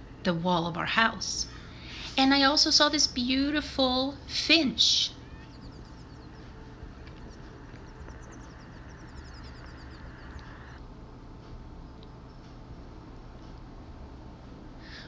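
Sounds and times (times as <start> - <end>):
faint low hum: 0.0 - 10.8
finch singing: 0.1 - 10.8.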